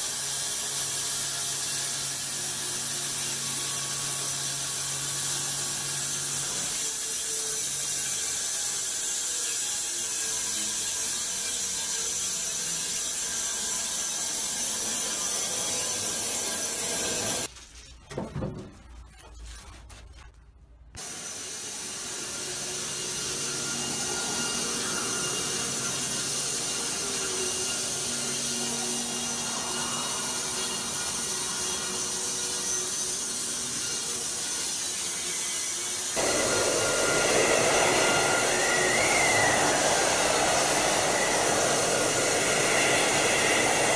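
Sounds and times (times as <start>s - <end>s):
sawmill machinery running: 13.8s - 17.5s, 21.0s - 43.9s.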